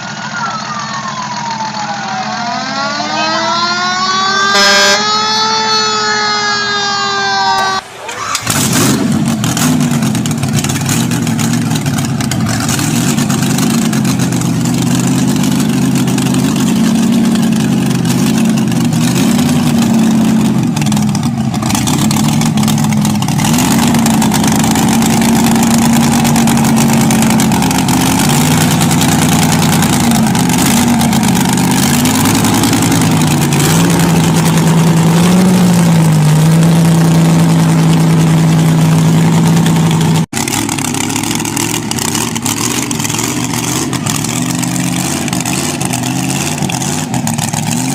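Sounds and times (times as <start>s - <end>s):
motorcycle engine running: 8.4s - 47.9s.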